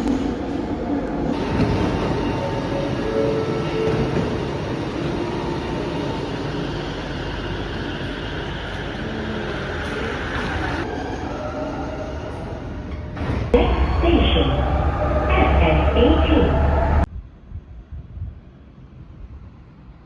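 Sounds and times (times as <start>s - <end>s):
train running rumble: 12.9s - 17.1s.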